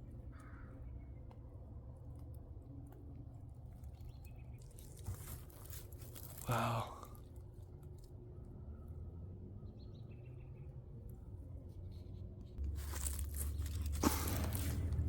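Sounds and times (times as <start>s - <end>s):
faint bird chirp: 3.8s - 5.5s, 8.2s - 12.6s
rustling: 4.6s - 6.5s, 11.6s - 15.0s.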